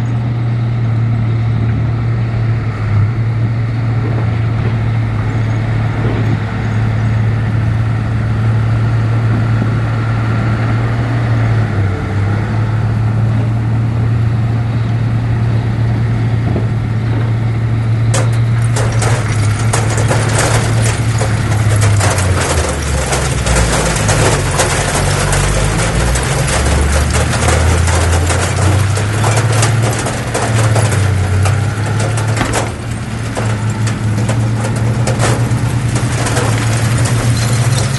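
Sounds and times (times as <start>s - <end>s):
heavy diesel engine running: 0.0s - 37.9s
rattling scraping noise: 17.0s - 37.9s.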